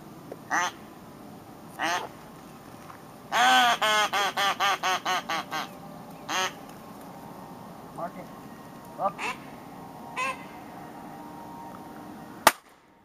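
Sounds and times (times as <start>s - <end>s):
duck call quacks: 0.5s - 0.8s, 1.8s - 2.1s, 3.3s - 5.7s, 6.3s - 6.6s, 9.0s - 9.4s, 10.2s - 10.5s.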